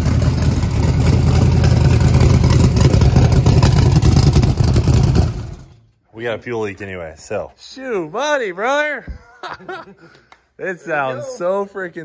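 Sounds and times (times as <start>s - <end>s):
engine running loudly: 0.0s - 5.7s.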